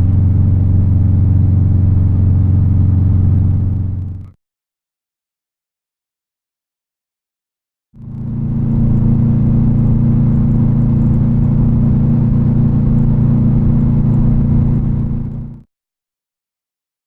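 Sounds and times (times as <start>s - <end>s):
car engine droning: 0.0s - 4.3s, 8.0s - 15.6s.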